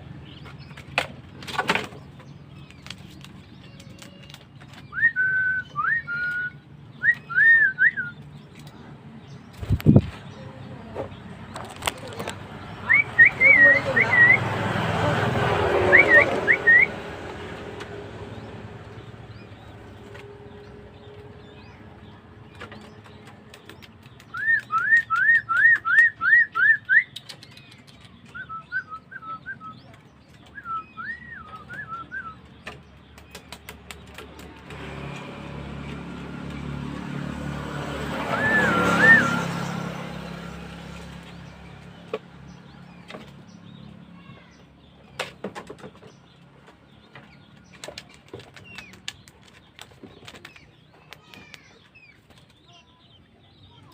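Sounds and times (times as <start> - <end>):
birds chirping: 0.0 - 53.9
rising whistled bird notes: 4.9 - 8.2, 15.8 - 16.9, 38.2 - 39.7.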